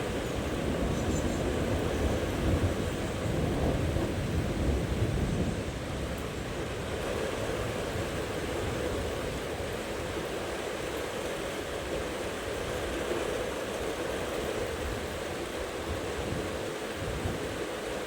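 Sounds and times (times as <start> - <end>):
low rumble of thunder: 0.0 - 6.2
steady rain falling: 0.0 - 18.0.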